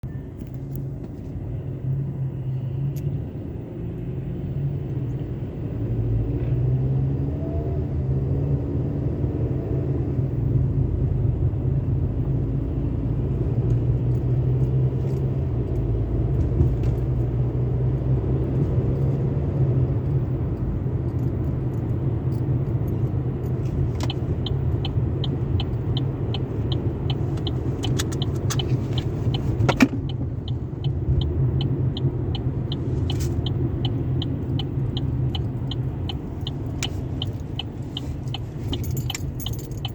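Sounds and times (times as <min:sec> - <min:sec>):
even ticks: 0:30.0 - 0:39.9.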